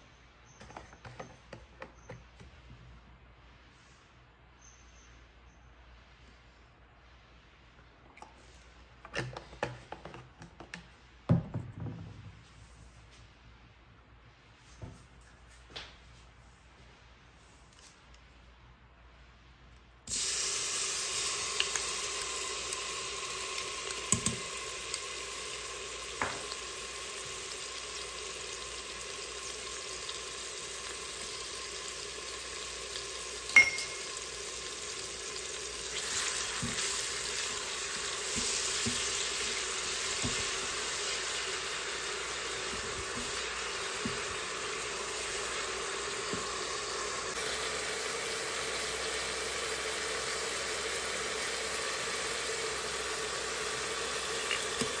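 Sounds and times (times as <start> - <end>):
food sizzling in hot pan: 20.1 - 55.0.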